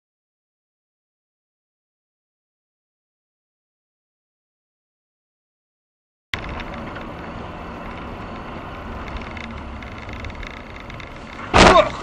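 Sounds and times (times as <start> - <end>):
vehicle and road noise: 6.4 - 12.0.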